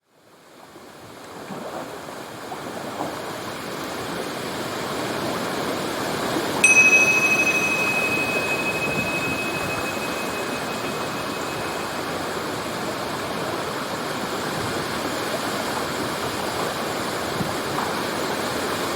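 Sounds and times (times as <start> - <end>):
bell-like chime: 6.6 - 12.5.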